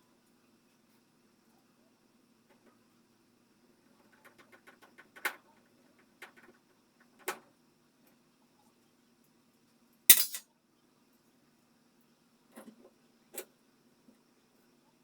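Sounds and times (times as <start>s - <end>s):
tools and parts clicking: 10.1s - 10.4s.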